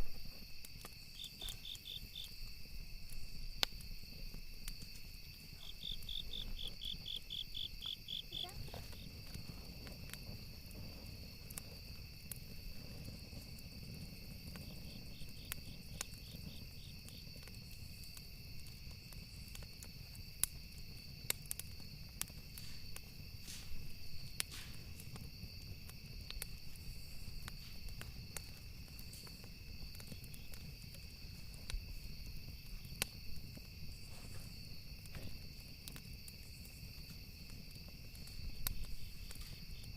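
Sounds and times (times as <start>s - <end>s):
crickets chirping: 0.0s - 39.9s
wood crackling and popping: 0.0s - 39.9s.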